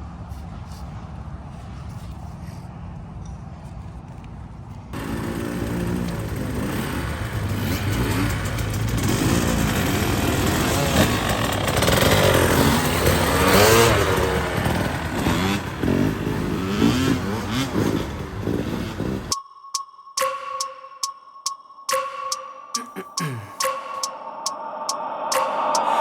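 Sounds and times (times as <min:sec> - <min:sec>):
dirt bike engine revving: 0:05.0 - 0:19.3.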